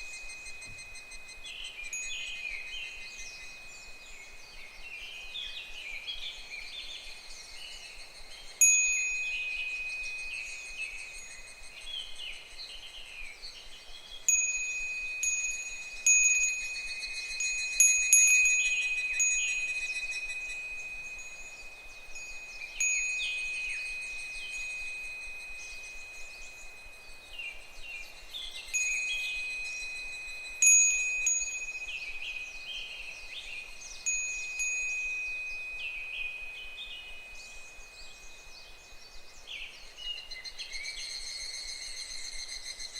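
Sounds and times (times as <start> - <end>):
wind chime ringing: 0.0 - 4.4, 8.5 - 11.8, 14.3 - 38.5
cicadas calling faintly: 0.0 - 42.9.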